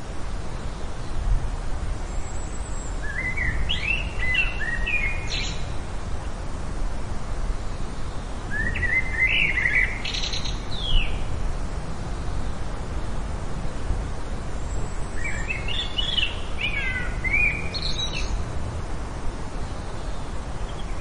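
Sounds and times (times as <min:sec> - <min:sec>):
songbird warbling: 0:02.2 - 0:05.8, 0:08.5 - 0:11.3, 0:15.1 - 0:18.4, 0:19.9 - 0:21.0.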